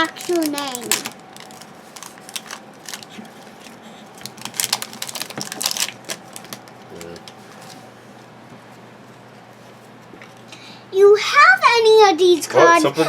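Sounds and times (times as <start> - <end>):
trading card packs crinkling: 0.0 - 7.9.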